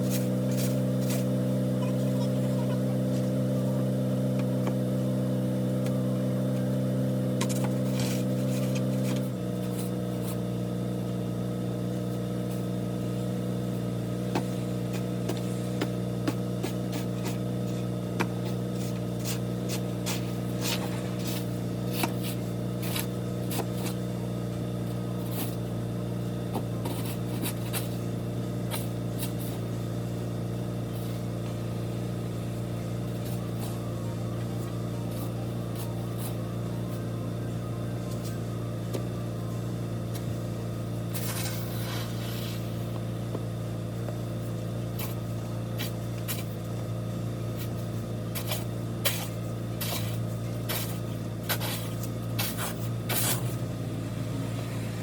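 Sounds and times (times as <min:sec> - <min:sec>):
motor hum: 0:00.0 - 0:55.0.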